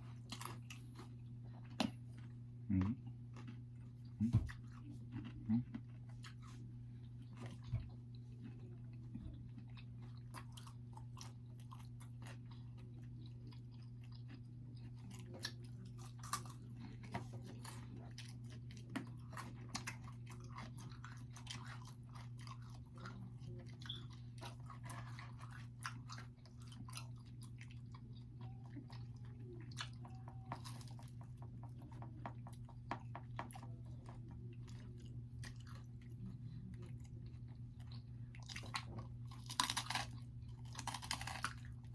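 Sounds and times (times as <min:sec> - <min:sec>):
chewing and biting pizza: 0:00.0 - 0:41.9.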